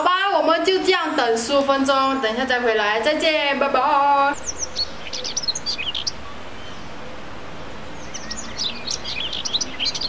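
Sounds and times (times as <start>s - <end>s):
steady background hiss: 0.0s - 10.0s
small birds chirping: 4.3s - 10.0s.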